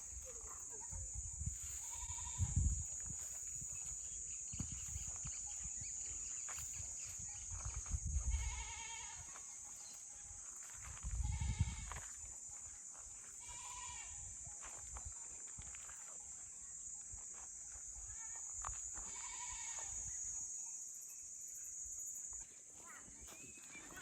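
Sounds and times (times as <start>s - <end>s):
goats bleating: 8.3s - 9.3s.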